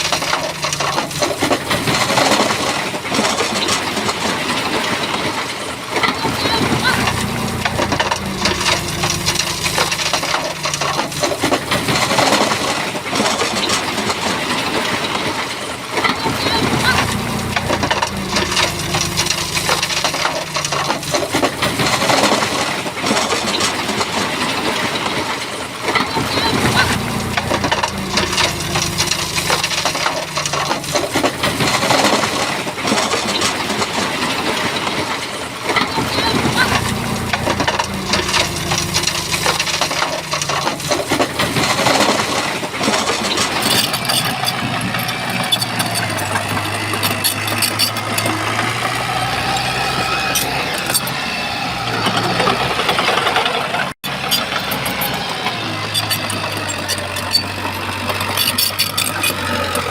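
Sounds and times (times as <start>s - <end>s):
rocks grinding and knocking: 0.0s - 59.9s
low engine note: 6.1s - 14.6s, 16.2s - 25.4s, 26.1s - 32.8s, 35.6s - 58.4s.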